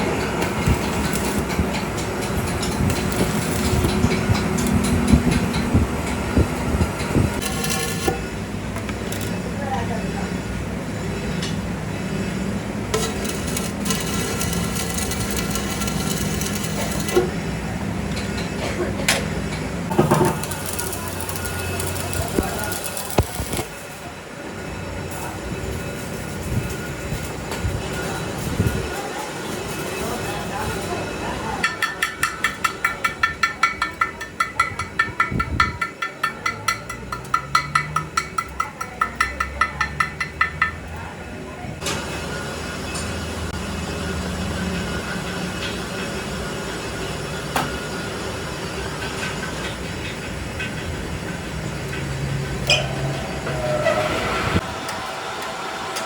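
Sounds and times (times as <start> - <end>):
metal scraping: 0.0 - 9.5, 12.9 - 17.6, 19.9 - 24.1, 51.8 - 55.0
metal-on-metal hammering: 19.9 - 23.9, 31.6 - 41.0, 52.6 - 53.8.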